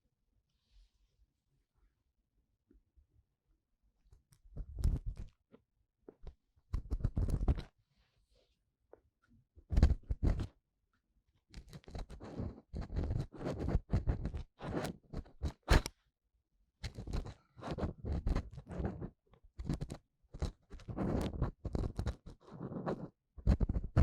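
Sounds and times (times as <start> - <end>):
ear tool scraping microphone: 6.8 - 7.7, 9.7 - 10.5, 11.7 - 15.9, 16.8 - 24.0.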